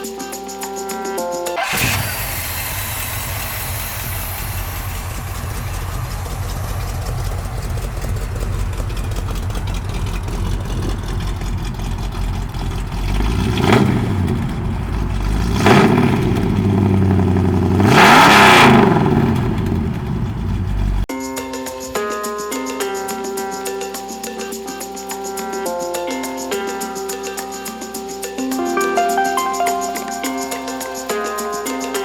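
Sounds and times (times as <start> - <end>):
car engine idling and revving: 1.6 - 21.1.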